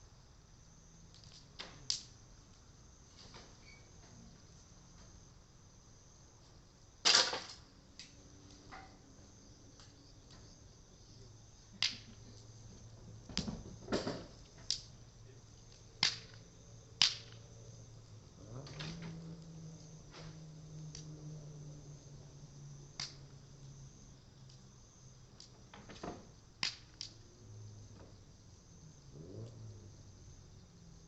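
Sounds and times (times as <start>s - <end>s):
faint insect drone: 0.0s - 31.0s
bonfire popping and crackling: 1.1s - 3.5s, 7.0s - 8.6s, 11.5s - 21.1s, 22.8s - 23.3s, 24.5s - 27.3s.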